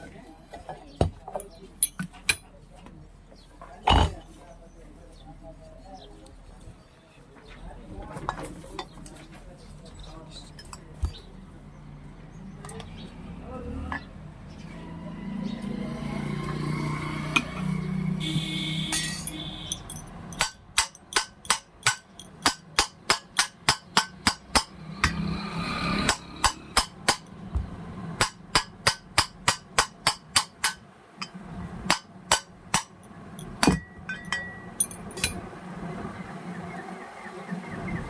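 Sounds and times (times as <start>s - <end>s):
hammer tapping on metal: 18.9s - 25.3s, 26.0s - 35.4s.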